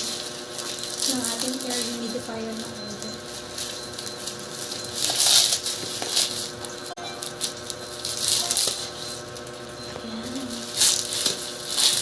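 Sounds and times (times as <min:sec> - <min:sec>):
packaging being cut and torn: 0:00.0 - 0:02.1, 0:03.6 - 0:06.6, 0:07.2 - 0:09.3, 0:10.6 - 0:12.0
plastic and tape rustling: 0:00.0 - 0:12.0.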